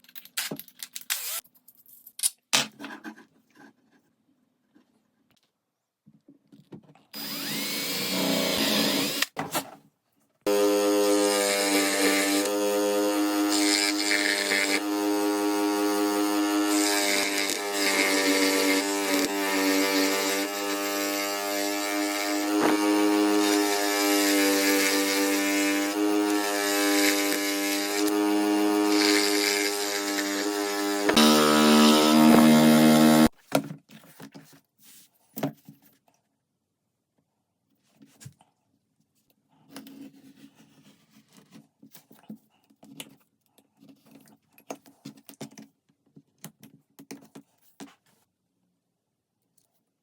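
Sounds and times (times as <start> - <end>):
electric power tool cutting wood: 1.2 - 1.4, 7.2 - 9.4, 10.5 - 33.3.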